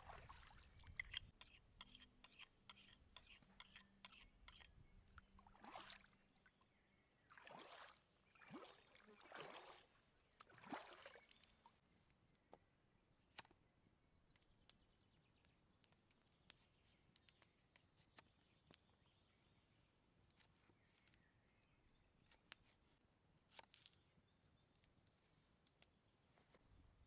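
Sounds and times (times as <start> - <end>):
faint bird chirps: 6.5 - 7.4, 14.1 - 22.8.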